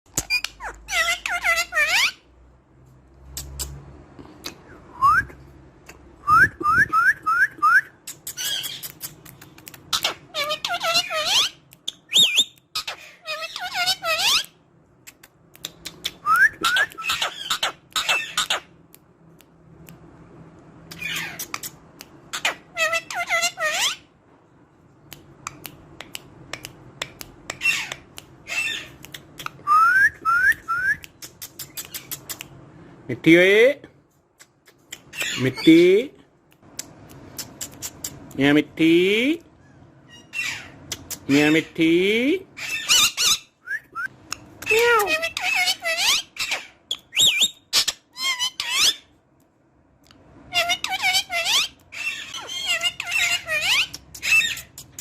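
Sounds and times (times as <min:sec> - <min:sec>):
parrot chirps: 0:00.2 - 0:02.3, 0:08.0 - 0:14.6, 0:15.6 - 0:18.8, 0:20.9 - 0:24.1, 0:27.5 - 0:32.5, 0:34.4 - 0:35.7, 0:39.6 - 0:41.7, 0:42.6 - 0:49.2, 0:50.4 - 0:55.0
parrot squawking: 0:00.2 - 0:02.3, 0:08.2 - 0:09.1, 0:09.9 - 0:14.6, 0:16.6 - 0:18.7, 0:20.9 - 0:21.7, 0:22.3 - 0:24.1, 0:27.6 - 0:29.6, 0:35.0 - 0:35.8, 0:39.7 - 0:41.8, 0:42.6 - 0:43.6, 0:44.6 - 0:49.1, 0:50.5 - 0:55.0
harsh parrot calls: 0:00.3 - 0:02.3, 0:16.6 - 0:18.7, 0:22.3 - 0:24.1, 0:27.6 - 0:29.0, 0:39.6 - 0:41.8, 0:50.5 - 0:54.8
parrot clicking: 0:15.1 - 0:17.0.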